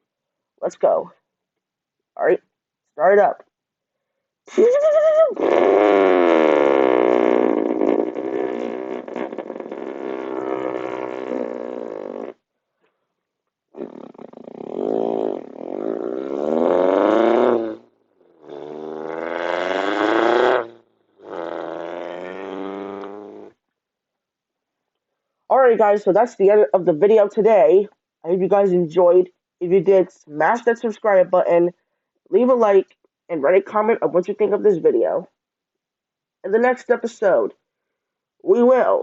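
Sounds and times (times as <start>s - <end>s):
person breathing: 3.9s - 4.4s
person imitating car engine: 4.5s - 12.4s, 13.8s - 23.5s.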